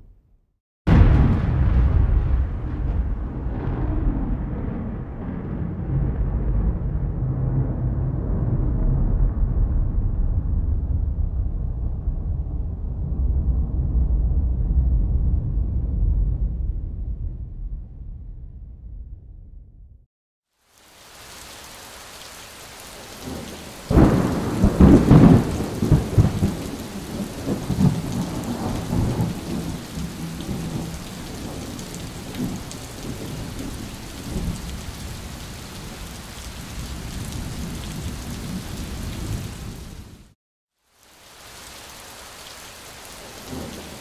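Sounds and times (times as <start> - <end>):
thunder clap and rumbling: 0.9 - 20.0, 22.9 - 40.4, 43.4 - 44.0
rain hissing: 20.5 - 44.0.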